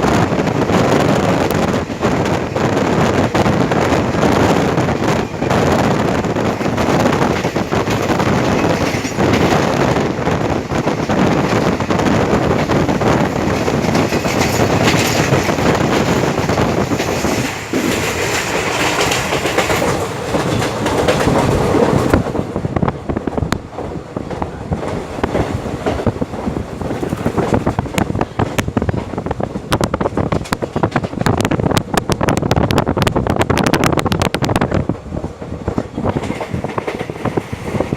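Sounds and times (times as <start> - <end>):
train rushing on rails: 0.0 - 37.9
wheels clicking over rail joints: 6.2 - 9.9, 10.8 - 22.4, 34.9 - 37.9.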